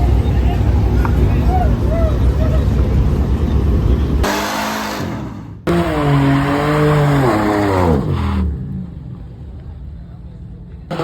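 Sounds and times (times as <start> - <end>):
car engine revving hard: 4.2 - 8.6.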